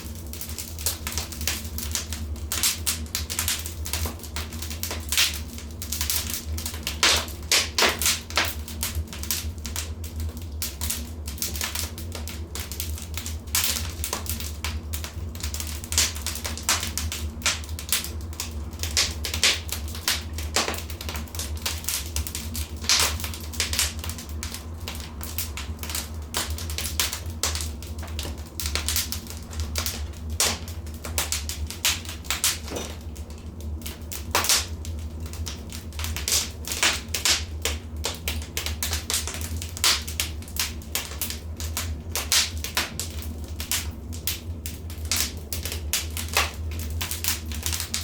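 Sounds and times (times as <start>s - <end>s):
fire crackling: 0.0s - 48.0s
steady low hum: 0.0s - 48.0s.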